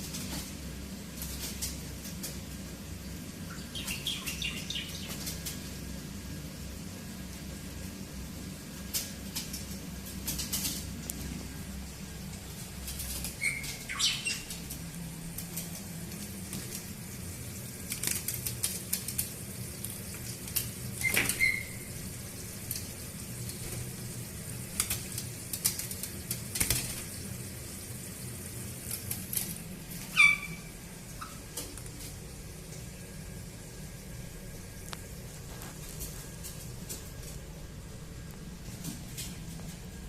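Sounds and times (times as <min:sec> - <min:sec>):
parrots splashing and fluttering: 0:00.0 - 0:37.6
shrill parrot calls: 0:13.4 - 0:14.5, 0:21.0 - 0:21.9, 0:30.1 - 0:31.4.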